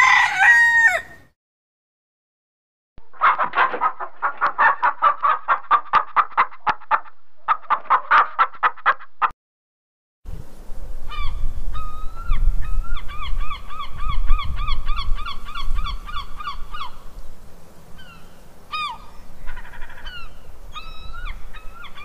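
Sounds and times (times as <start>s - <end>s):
gulls calling: 11.1s - 17.1s, 18.0s - 22.0s.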